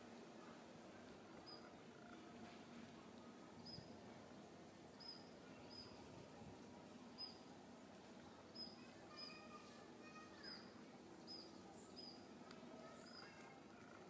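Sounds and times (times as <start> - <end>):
faint bird calls: 8.3 - 14.0
bird high chirp: 8.6 - 9.7, 11.2 - 12.2.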